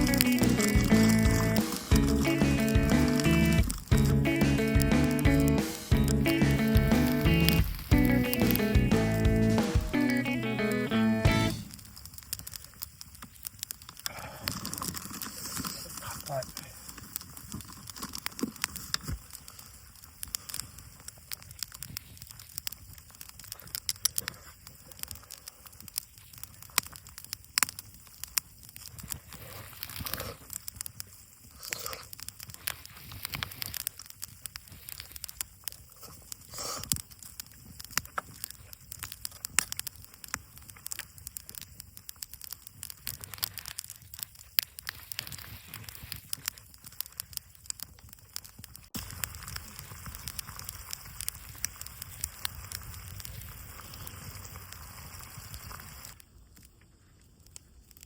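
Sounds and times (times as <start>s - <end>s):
campfire crackling: 0.0s - 58.0s
faint hiss: 48.9s - 58.0s.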